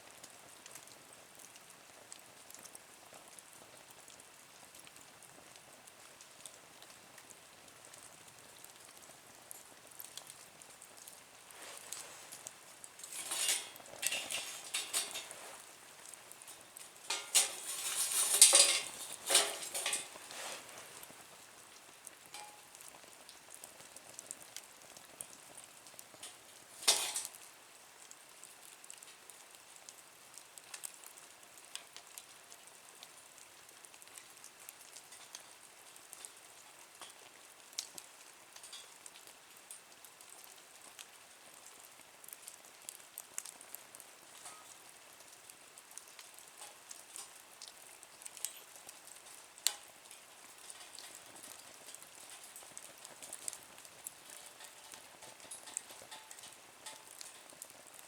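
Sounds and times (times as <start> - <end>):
wood fire crackling and sizzling: 0.0 - 58.0
sharp crack of fire: 11.4 - 22.9, 23.6 - 27.6, 45.4 - 58.0.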